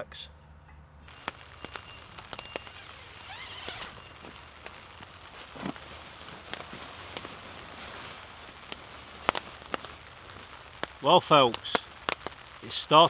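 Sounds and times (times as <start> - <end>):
soft rain patter: 1.0 - 13.0
raindrops tapping on a tarp: 1.1 - 13.0.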